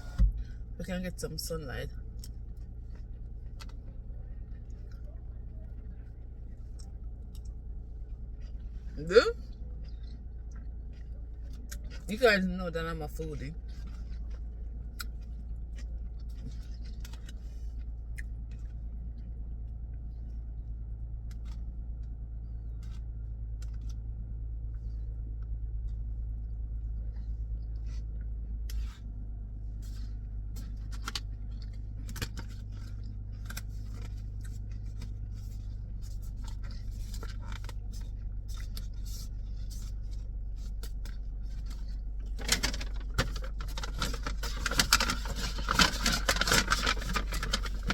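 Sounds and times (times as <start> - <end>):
car cabin hum: 0.0 - 16.6, 28.3 - 47.9.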